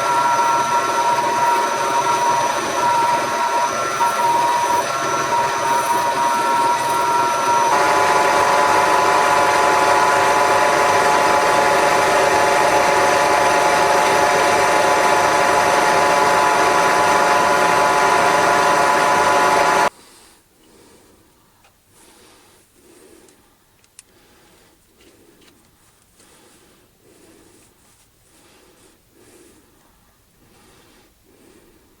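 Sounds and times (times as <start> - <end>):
machine tool humming and whining: 0.0 - 19.9.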